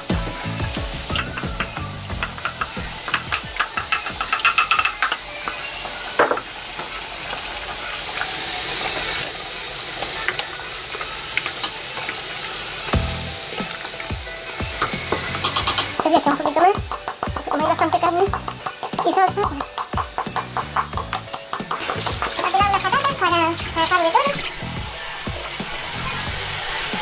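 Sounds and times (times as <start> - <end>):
sauce sizzling in pot: 0.0 - 27.0
spoon knocking on pot: 1.1 - 5.6, 14.8 - 23.2.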